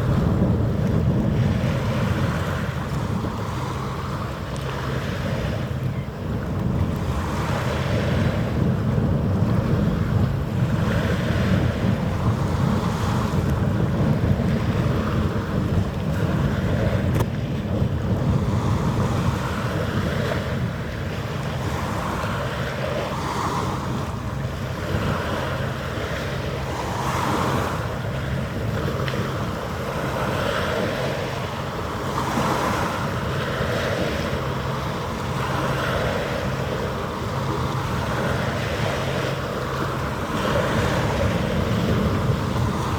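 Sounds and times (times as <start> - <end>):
waves washing: 0.0 - 42.9
wind buffeting microphone: 0.0 - 42.9.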